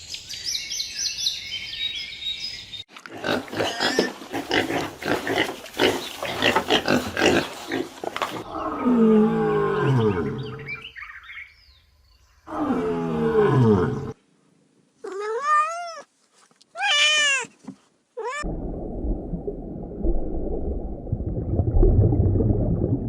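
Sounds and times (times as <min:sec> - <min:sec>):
cat meowing: 0:15.0 - 0:16.1, 0:16.7 - 0:17.5, 0:18.2 - 0:18.5
low rough rumbling: 0:18.5 - 0:23.0.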